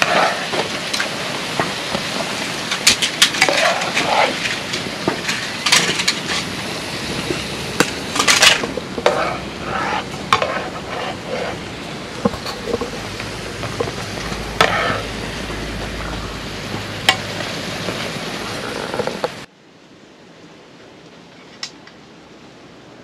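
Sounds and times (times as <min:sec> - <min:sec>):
pancakes sizzling in oil: 0:00.0 - 0:19.3
turner scraping pan: 0:02.7 - 0:06.6, 0:07.8 - 0:19.3.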